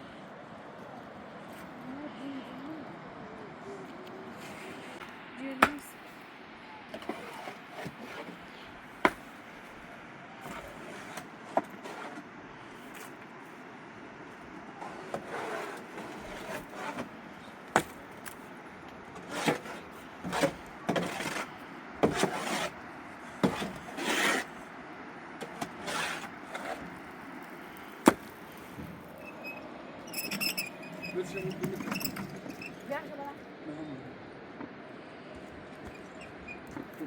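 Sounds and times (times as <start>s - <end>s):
scraping and rubbing strokes: 7.0s - 9.4s, 10.4s - 12.3s, 14.8s - 17.2s, 19.1s - 22.8s, 23.4s - 24.6s, 25.4s - 29.4s.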